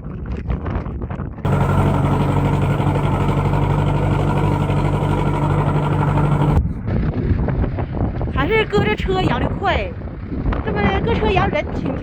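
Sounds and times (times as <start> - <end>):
farm vehicle engine humming: 1.5 - 6.6.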